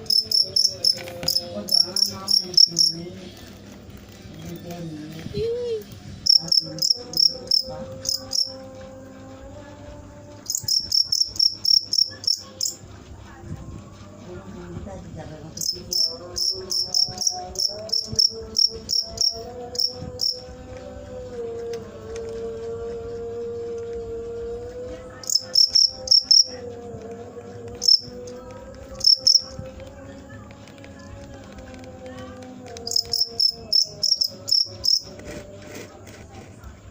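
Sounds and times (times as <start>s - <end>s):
cricket chirping: 0.0s - 3.0s, 6.2s - 9.0s, 10.4s - 12.8s, 15.6s - 20.6s, 24.1s - 26.8s, 27.6s - 29.6s, 32.8s - 35.1s.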